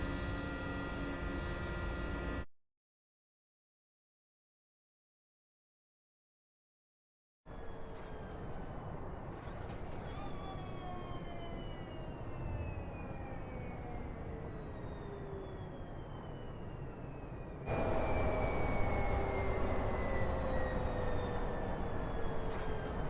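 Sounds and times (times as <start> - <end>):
electric truck drive whine: 0.0 - 2.5, 7.5 - 23.0.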